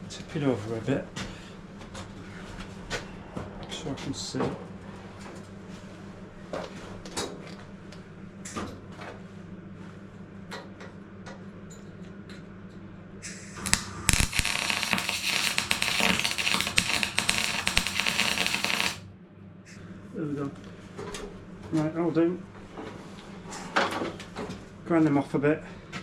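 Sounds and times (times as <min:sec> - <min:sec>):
welding arc crackling: 0:13.3 - 0:19.0.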